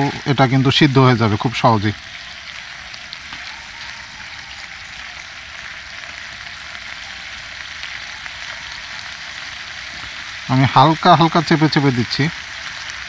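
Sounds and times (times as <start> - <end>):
food sizzling in frying pan: 0.0 - 13.0.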